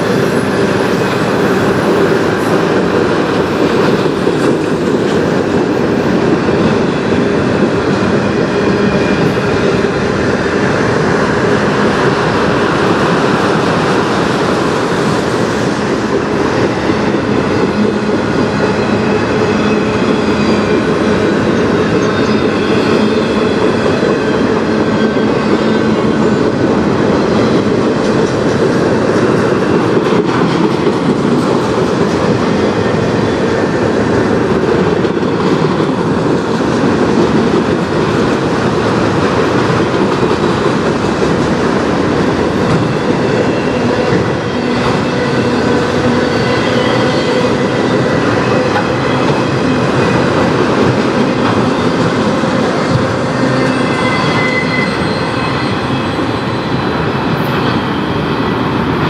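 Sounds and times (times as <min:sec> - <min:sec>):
freight train rolling past: 0:00.0 - 0:59.0
high-pitched wheel squeal: 0:43.6 - 0:49.9, 0:51.5 - 0:58.6.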